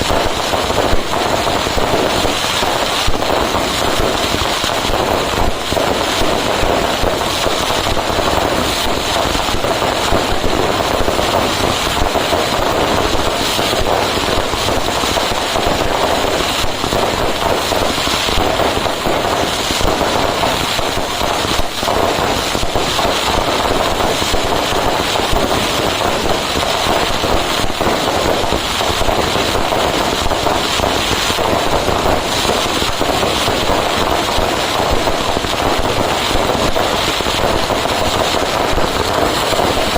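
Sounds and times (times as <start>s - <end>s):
fireworks crackling bangs: 0.0s - 39.9s.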